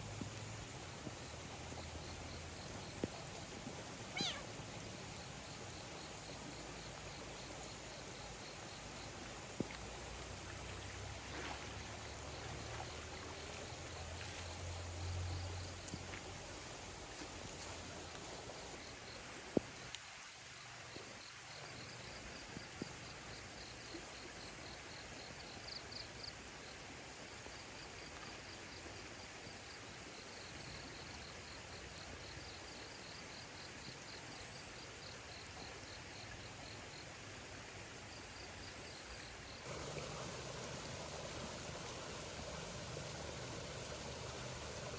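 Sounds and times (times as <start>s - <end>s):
insect chirping: 0.0s - 19.2s, 30.2s - 37.2s, 38.1s - 44.9s
steady outdoor hiss: 0.0s - 44.9s.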